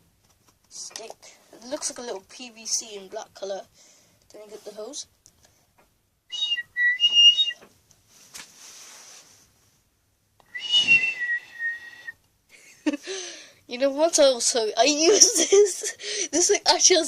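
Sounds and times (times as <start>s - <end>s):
high whistles: 6.3s - 7.6s, 10.4s - 12.2s.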